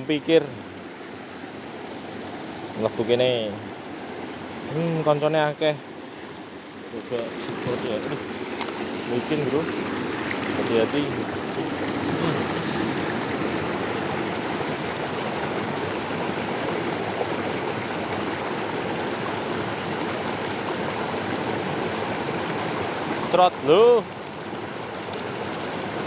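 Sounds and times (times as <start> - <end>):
river stream rushing: 0.0 - 26.0.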